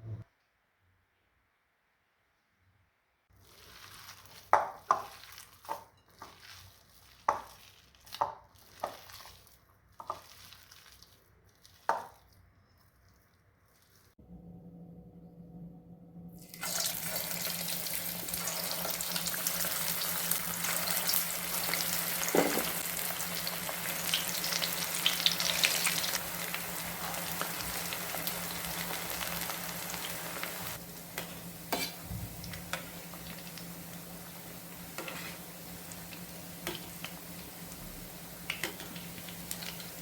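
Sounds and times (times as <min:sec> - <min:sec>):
low steady hum: 0:14.2 - 0:19.5
deep-frying sizzle: 0:16.4 - 0:40.0.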